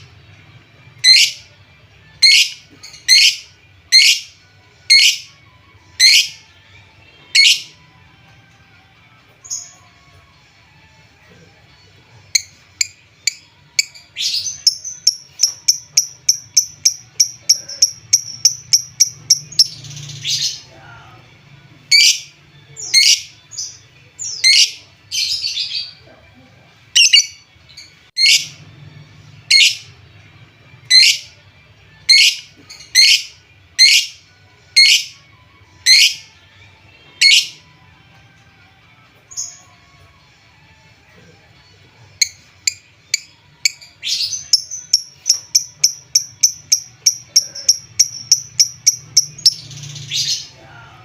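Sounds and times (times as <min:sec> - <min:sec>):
lovebird chirping and calling: 0:01.0 - 0:01.4, 0:02.2 - 0:04.3, 0:04.9 - 0:05.3, 0:06.0 - 0:06.4, 0:07.4 - 0:07.7, 0:12.4 - 0:20.6, 0:21.9 - 0:25.9, 0:27.0 - 0:27.4, 0:28.2 - 0:28.5, 0:29.5 - 0:29.9, 0:30.9 - 0:31.3, 0:32.1 - 0:34.2, 0:34.8 - 0:35.1, 0:35.8 - 0:36.2, 0:37.2 - 0:37.6, 0:42.2 - 0:50.5.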